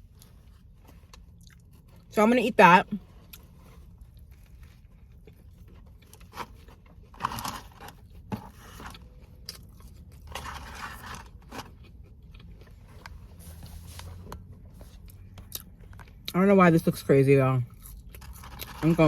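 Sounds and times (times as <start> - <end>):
biting and chewing: 3.0 - 16.3, 17.7 - 19.0.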